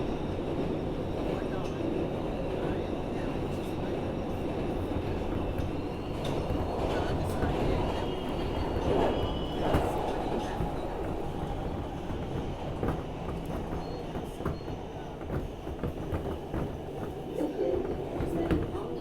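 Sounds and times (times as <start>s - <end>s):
subway wheels rumbling on rail: 0.0s - 19.0s.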